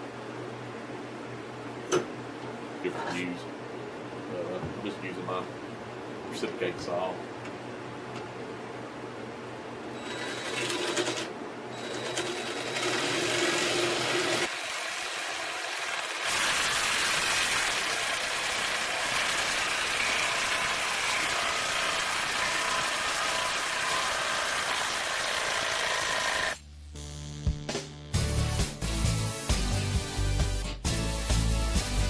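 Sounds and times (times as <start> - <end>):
reciprocating saw cutting pipe: 12.8 - 26.6.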